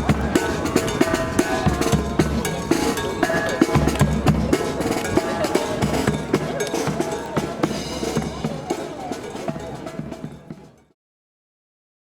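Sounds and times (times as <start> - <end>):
brass marching band playing: 0.0 - 10.9
drum beats: 0.0 - 10.9.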